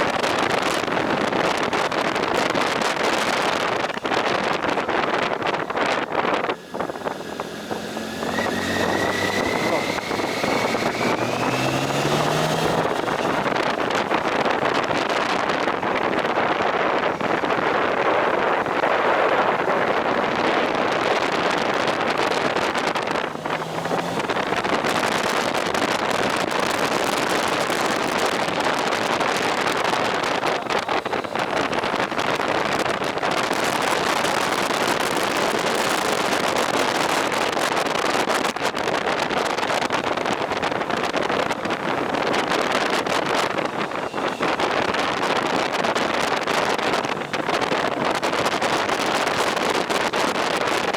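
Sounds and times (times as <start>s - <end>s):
faint motorcycle engine: 0.0s - 50.9s
motorcycle road noise: 0.0s - 50.9s
wind rush on microphone: 0.0s - 50.9s.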